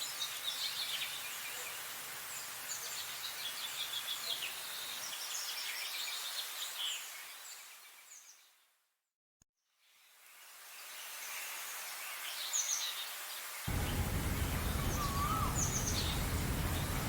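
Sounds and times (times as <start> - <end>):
steady outdoor hiss: 0.0 - 8.2, 9.9 - 17.0
songbirds chirping: 13.7 - 17.0.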